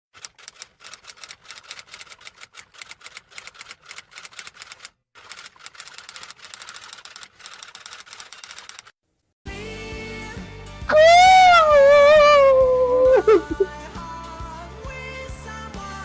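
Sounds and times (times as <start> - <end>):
rapid typing clicks: 0.2 - 8.9.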